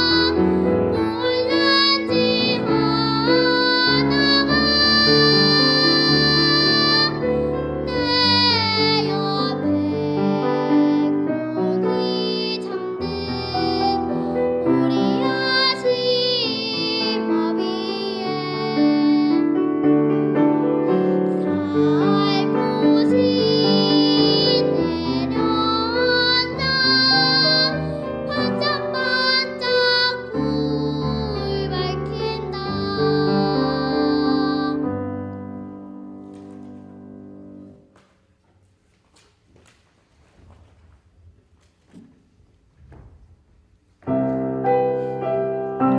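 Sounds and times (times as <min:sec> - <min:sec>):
child singing with vibrato: 0:00.0 - 0:19.6, 0:21.0 - 0:35.0.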